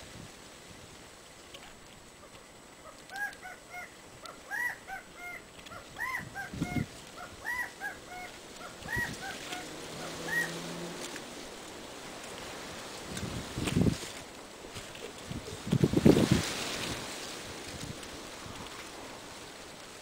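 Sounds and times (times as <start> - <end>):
bird calling short notes: 2.8 - 10.8
wind thumps on microphone: 6.2 - 7.0, 13.0 - 14.2, 15.2 - 17.1.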